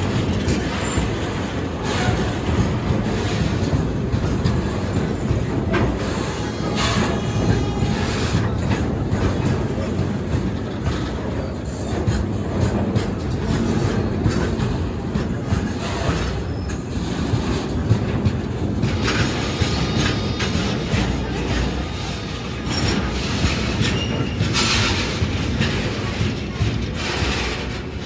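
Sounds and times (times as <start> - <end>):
train wheels clattering over rail joints: 0.0 - 28.0
high wheel squeal: 6.0 - 8.9, 19.4 - 25.3.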